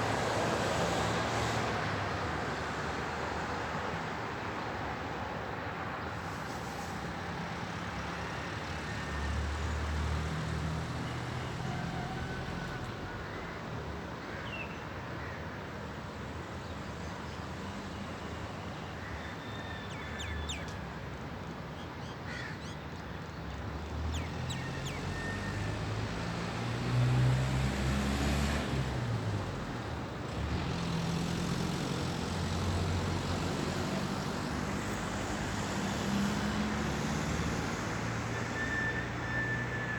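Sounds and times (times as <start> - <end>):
traffic hum: 20.3 - 39.9
engine rumbles: 24.8 - 38.4.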